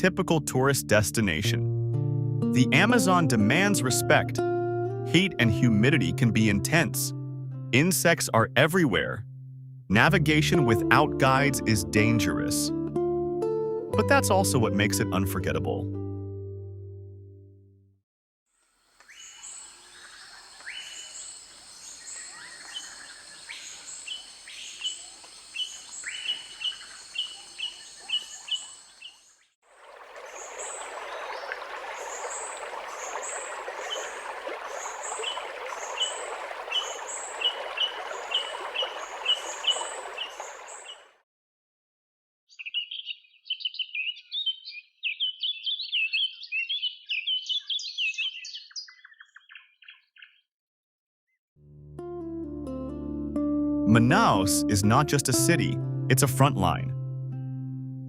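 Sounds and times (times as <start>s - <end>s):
birds chirping: 19.0s - 41.2s, 42.5s - 50.5s
bird chatter: 30.4s - 41.0s, 42.6s - 50.4s.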